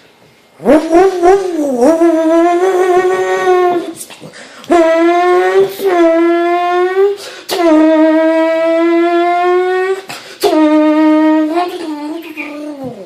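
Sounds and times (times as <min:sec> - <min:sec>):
person imitating car engine: 0:00.6 - 0:04.1, 0:04.7 - 0:13.0
quick breaths: 0:10.1 - 0:10.4.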